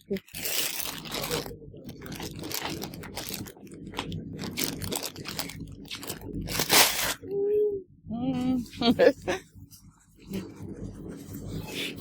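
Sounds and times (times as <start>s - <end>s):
packaging crinkling and rustling: 0.0s - 7.2s.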